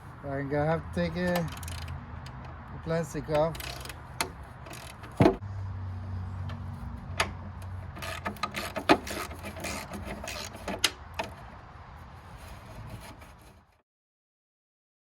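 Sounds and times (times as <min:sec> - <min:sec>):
tools and parts clicking and knocking: 0:01.2 - 0:02.7, 0:03.3 - 0:05.4, 0:06.4 - 0:11.5.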